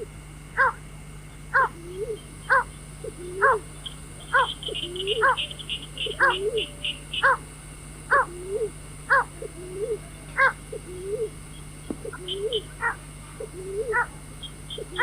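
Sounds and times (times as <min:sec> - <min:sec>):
steady low hum: 0:00.0 - 0:15.0
waterhen calling: 0:01.6 - 0:07.4, 0:12.0 - 0:15.0.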